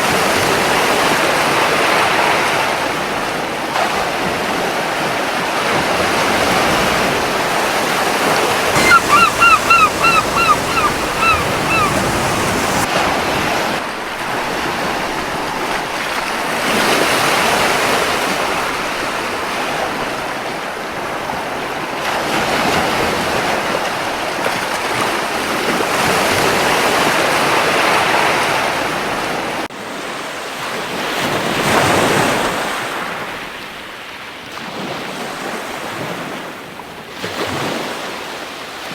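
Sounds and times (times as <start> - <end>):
surf washing onto beach: 6.5 - 12.9
seagull calling: 8.8 - 12.9.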